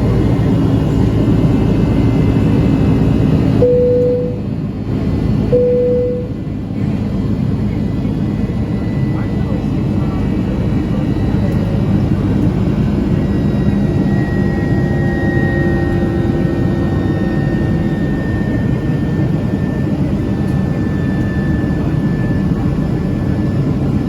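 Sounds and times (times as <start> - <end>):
jet engine roar in cabin: 0.0 - 24.0
faint high whine: 3.5 - 4.5, 5.5 - 6.5.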